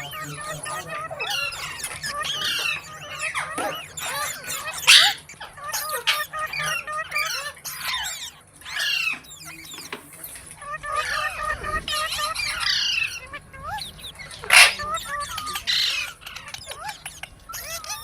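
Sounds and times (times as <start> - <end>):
parrot harsh squawk: 0.0 - 9.6, 10.6 - 18.0
parrot chattering whistles: 10.6 - 18.0.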